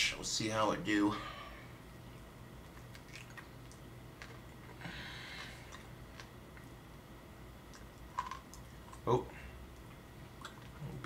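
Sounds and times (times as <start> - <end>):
low steady hum: 0.0 - 11.0
faint chewing: 2.6 - 6.8, 7.6 - 9.1, 9.7 - 11.0.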